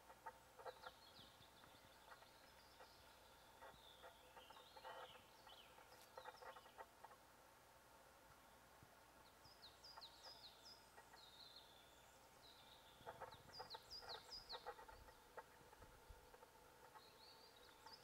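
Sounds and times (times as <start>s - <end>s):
low pulsing bird call: 9.4s - 18.0s.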